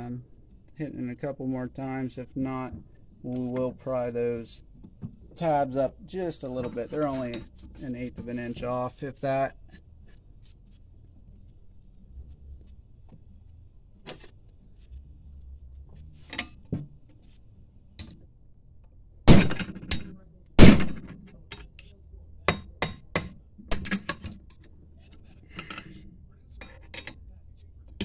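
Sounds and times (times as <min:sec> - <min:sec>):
hammer striking metal: 0:19.3 - 0:20.0.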